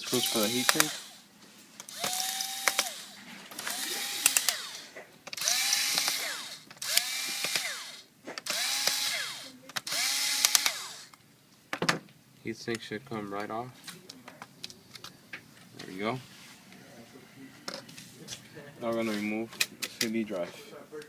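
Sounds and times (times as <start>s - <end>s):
drill bit and screws clicking: 0.0s - 1.2s, 1.8s - 11.2s
electric drill motor whine: 0.0s - 1.2s, 1.9s - 11.2s.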